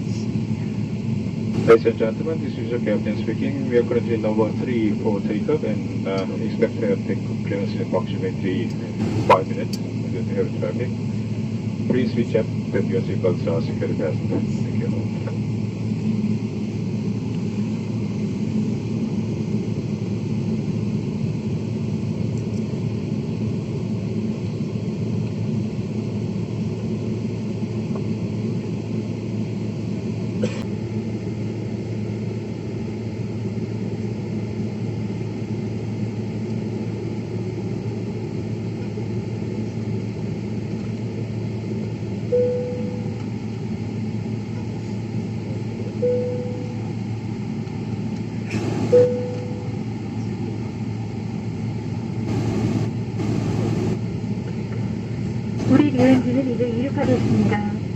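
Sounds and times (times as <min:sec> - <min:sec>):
airliner cabin hum: 0:00.0 - 0:57.9
short tone: 0:42.3 - 0:43.2, 0:46.0 - 0:46.9, 0:48.9 - 0:49.8.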